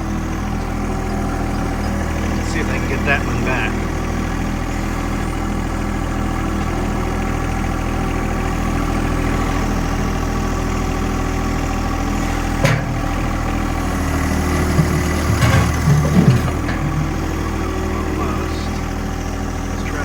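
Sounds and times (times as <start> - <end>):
loader engine running: 0.0 - 20.0
sharp clunk: 12.6 - 13.5, 14.6 - 17.4
bucket moving rocks: 12.6 - 18.2.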